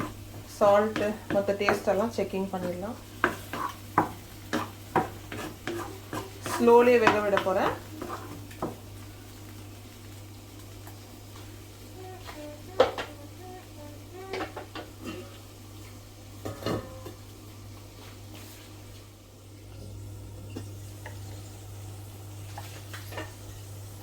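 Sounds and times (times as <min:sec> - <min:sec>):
spoon clinking and scraping pot: 0:03.2 - 0:08.8.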